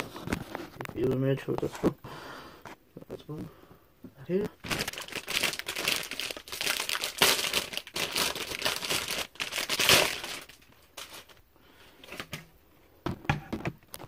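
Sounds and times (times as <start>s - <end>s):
packaging crinkling and rustling: 4.3s - 11.4s.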